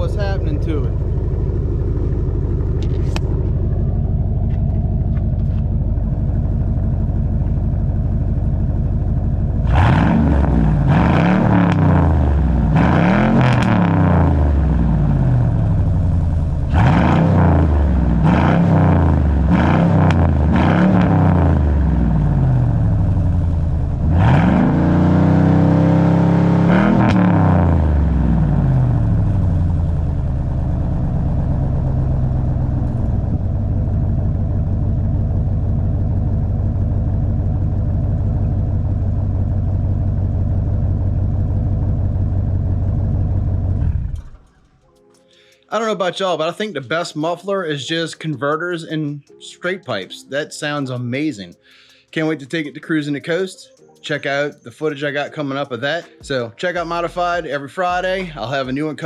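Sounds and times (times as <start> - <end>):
engine idling and revving: 0.0 - 44.8, 58.0 - 58.6.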